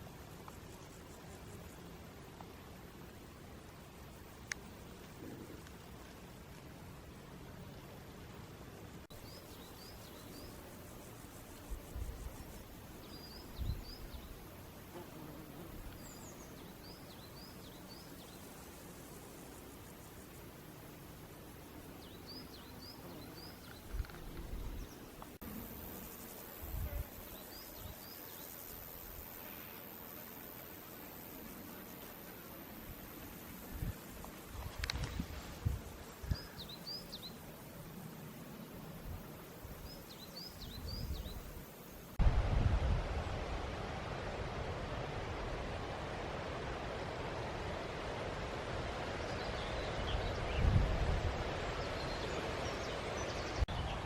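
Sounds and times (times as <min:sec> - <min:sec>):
background hiss: 0:00.0 - 0:54.0
songbird singing: 0:08.9 - 0:32.6, 0:33.8 - 0:37.6, 0:38.5 - 0:42.2, 0:49.1 - 0:54.0
wind rumble on microphone: 0:13.3 - 0:14.4, 0:23.8 - 0:25.1, 0:33.7 - 0:36.5, 0:42.2 - 0:47.1, 0:47.7 - 0:54.0.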